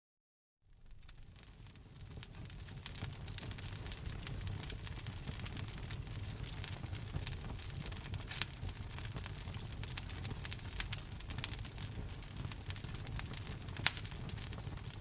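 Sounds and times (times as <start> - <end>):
wood fire crackling: 0.7 - 15.0.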